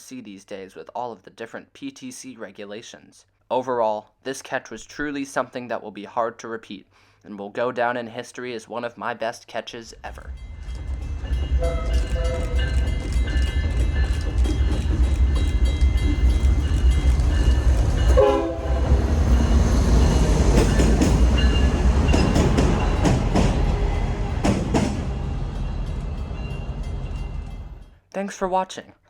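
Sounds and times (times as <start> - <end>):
locomotive engine rumble: 9.9 - 27.9
wheels clicking over rail joints: 10.3 - 18.2
train horn: 11.6 - 12.6, 18.1 - 19.3.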